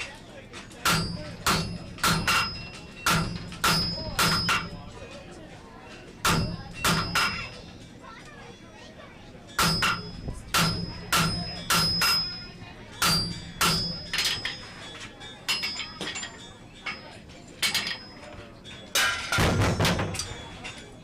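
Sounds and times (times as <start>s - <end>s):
hammer striking iron on anvil: 0.8s - 4.9s, 6.2s - 7.6s, 9.6s - 14.9s, 15.5s - 20.7s.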